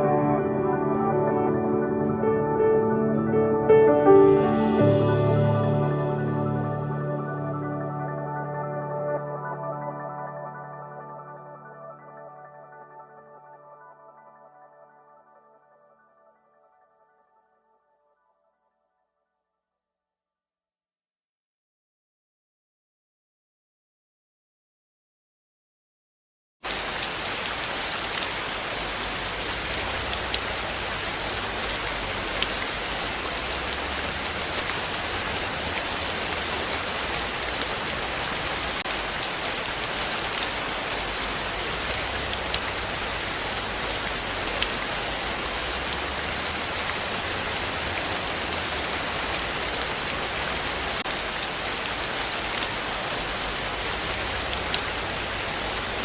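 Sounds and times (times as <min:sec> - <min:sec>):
heavy rain falling: 0:26.6 - 0:56.0.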